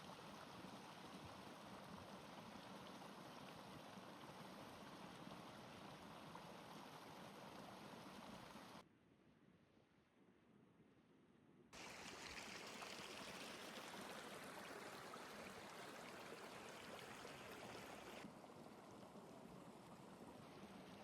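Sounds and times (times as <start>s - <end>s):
water hissing: 11.8s - 15.6s.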